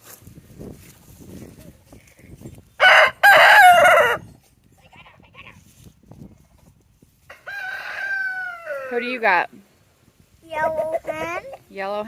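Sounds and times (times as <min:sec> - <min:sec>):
rooster crowing: 0:02.8 - 0:04.2, 0:07.3 - 0:09.2.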